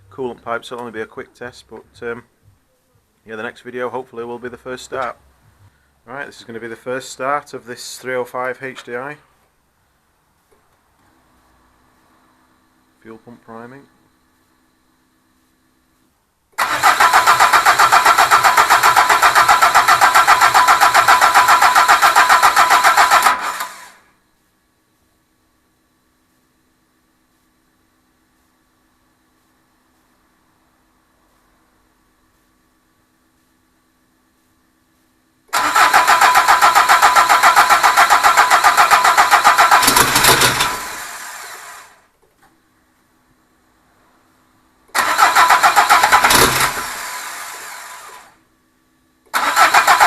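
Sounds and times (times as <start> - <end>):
starter motor cranking diesel engine: 16.6 - 24.0, 35.5 - 42.0, 44.9 - 48.3, 49.3 - 50.0
electric fuel pump hum: 35.5 - 42.1, 44.9 - 48.4.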